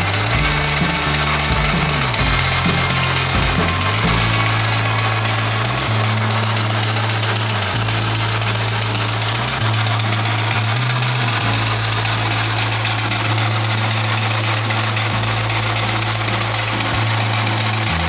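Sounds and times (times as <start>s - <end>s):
steam engine drone: 0.0s - 18.0s.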